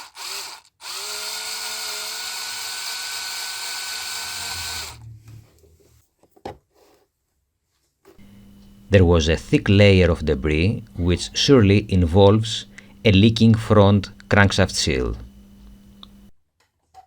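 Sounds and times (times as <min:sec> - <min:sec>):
power drill whining: 0:00.0 - 0:05.0.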